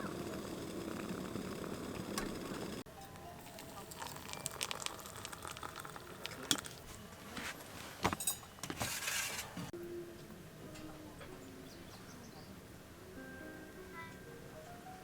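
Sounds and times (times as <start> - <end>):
cookware and utensils clinking: 3.0 - 9.7.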